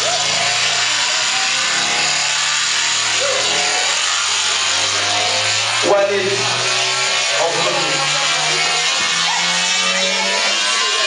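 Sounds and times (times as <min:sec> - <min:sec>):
crowd noise: 0:00.0 - 0:01.2, 0:07.3 - 0:11.0
people shouting: 0:09.1 - 0:09.9.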